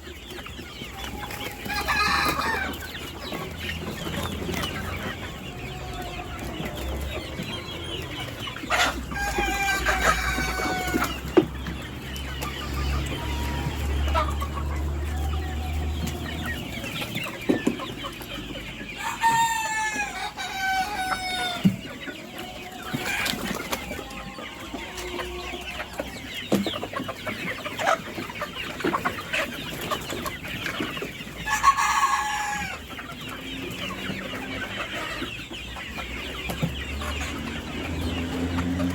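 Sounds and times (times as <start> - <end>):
chickens clucking: 0.0 - 38.9
rooster crowing: 1.6 - 2.8, 8.7 - 11.2.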